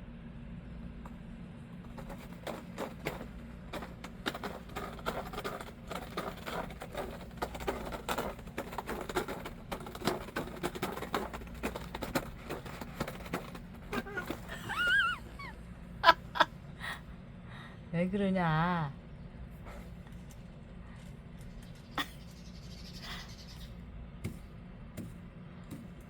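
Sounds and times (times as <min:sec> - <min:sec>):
steady low hum: 0:00.0 - 0:26.0
cats crunching dry food: 0:01.8 - 0:15.3.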